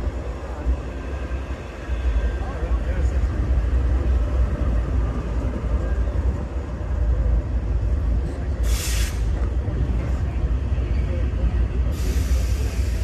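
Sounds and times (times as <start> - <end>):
freight train rumbling past: 0.0 - 13.0
sharp hiss of air: 8.6 - 9.4, 11.9 - 13.0.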